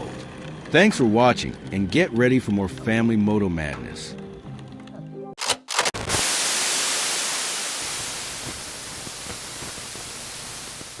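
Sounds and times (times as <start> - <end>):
static hiss: 6.0 - 11.0.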